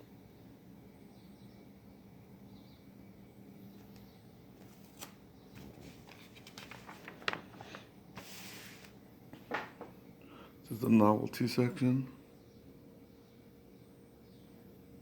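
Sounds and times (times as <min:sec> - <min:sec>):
paper pages turning: 0:04.6 - 0:09.9
paper rustle: 0:04.6 - 0:09.9.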